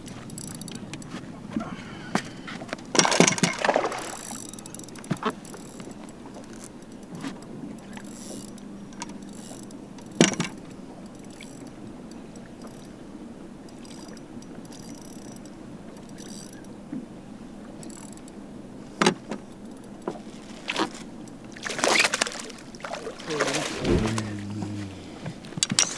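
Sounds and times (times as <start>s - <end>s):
boat motor humming: 21.2s - 25.9s
knocks on boat: 23.5s - 25.7s.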